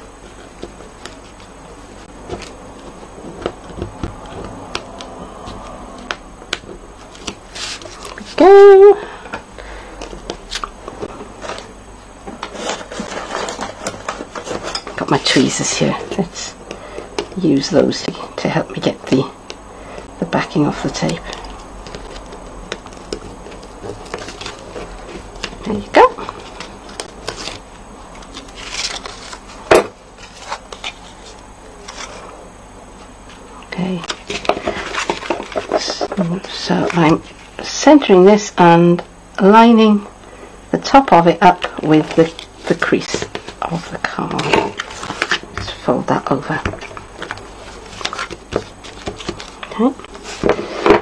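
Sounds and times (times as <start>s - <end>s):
paper rustling: 7.0s - 8.4s, 12.4s - 15.5s, 20.7s - 32.3s, 34.1s - 37.6s, 41.7s - 51.0s.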